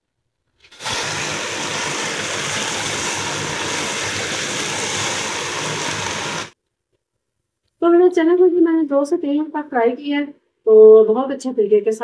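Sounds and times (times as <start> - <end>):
chickpeas sizzling in pan: 0.8 - 6.6.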